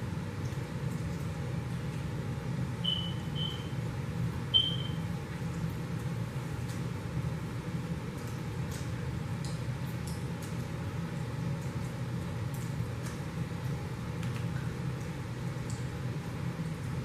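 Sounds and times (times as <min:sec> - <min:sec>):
low background hum: 0:00.0 - 0:17.0
short high pings: 0:02.9 - 0:03.7.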